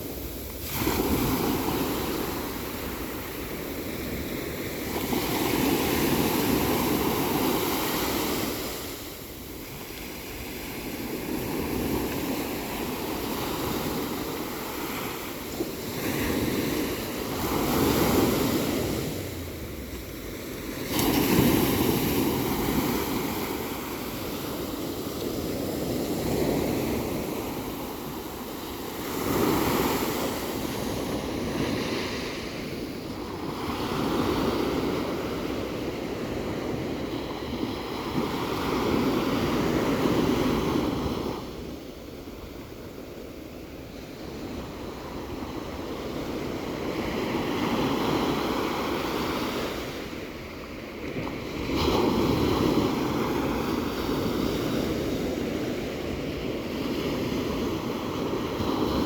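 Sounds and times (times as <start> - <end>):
ocean waves breaking: 0.0 - 41.9.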